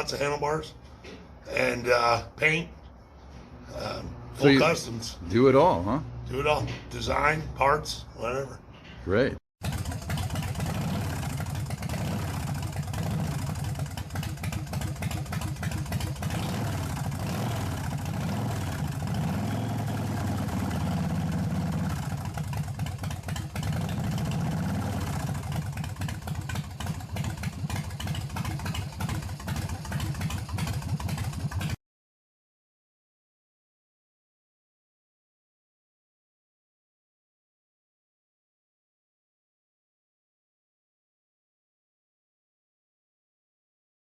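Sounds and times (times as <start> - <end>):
motorcycle engine idling: 9.6 - 31.8.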